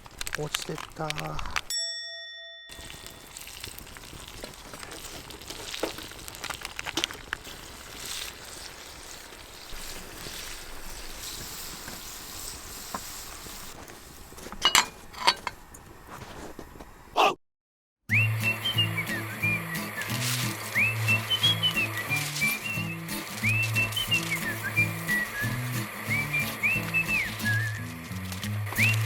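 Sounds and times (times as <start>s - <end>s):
food sizzling in a pan: 2.7s - 14.5s, 18.3s - 29.0s
utensil clinking against pan: 14.6s - 15.6s.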